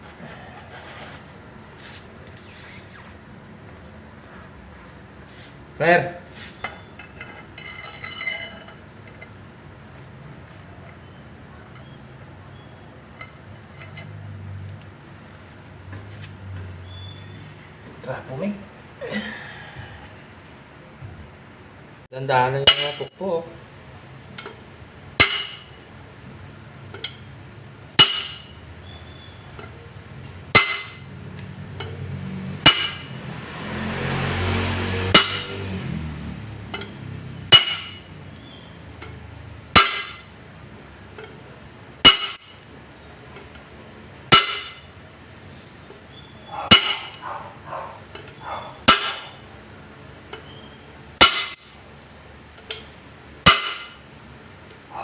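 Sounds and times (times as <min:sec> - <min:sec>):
hammer blows on metal: 0:32.6 - 0:33.2, 0:34.8 - 0:35.7, 0:46.1 - 0:47.2, 0:48.8 - 0:49.4.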